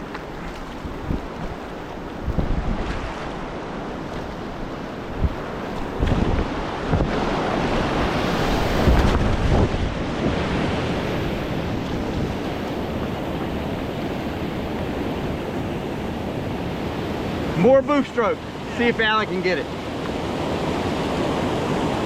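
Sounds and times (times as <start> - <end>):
wind buffeting microphone: 0.0 - 17.8
rushing whitewater: 0.0 - 22.0.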